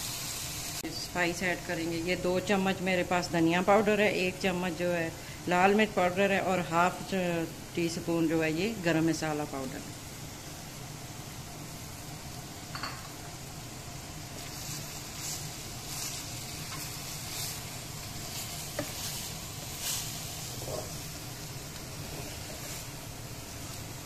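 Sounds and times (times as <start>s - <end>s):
chicken sizzling in oil: 0.0s - 1.9s, 7.2s - 24.0s
wooden spatula scraping pan: 14.4s - 21.0s, 21.8s - 23.0s.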